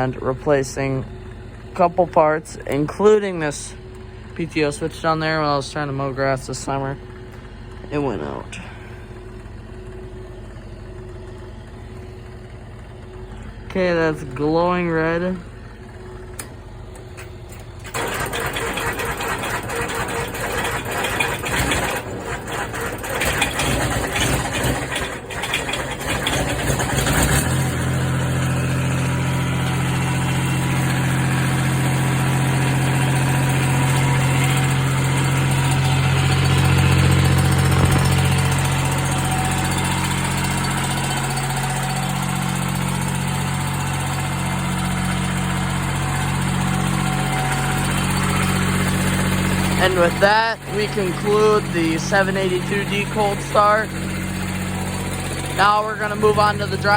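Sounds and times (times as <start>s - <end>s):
diesel engine sputtering and idling: 0.0s - 56.9s
starter cranking: 16.3s - 56.9s.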